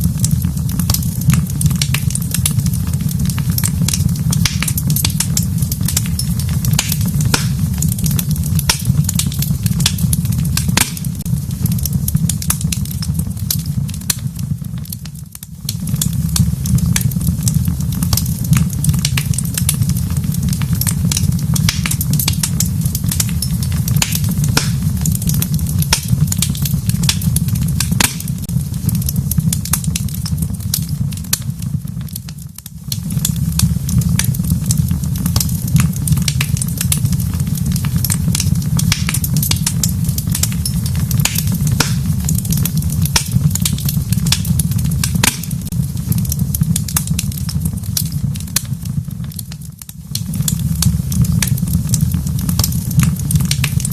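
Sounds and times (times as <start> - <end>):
low rumble of flames: 0.0 - 53.9
wood fire crackling and popping: 0.0 - 53.9.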